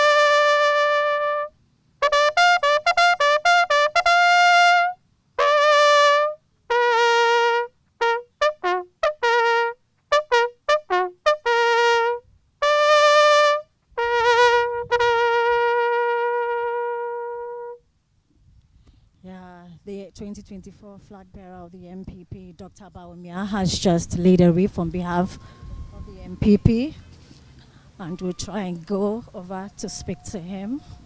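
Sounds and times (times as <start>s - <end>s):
solo bugle call: 0.0s - 17.9s.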